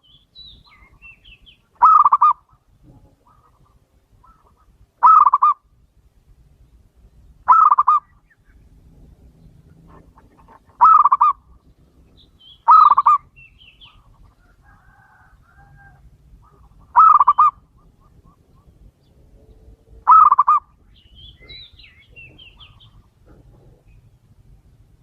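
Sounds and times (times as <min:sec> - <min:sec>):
small birds chirping: 0:00.0 - 0:24.9
dove cooing: 0:01.8 - 0:05.6, 0:07.5 - 0:08.2, 0:09.5 - 0:11.6, 0:12.6 - 0:20.8.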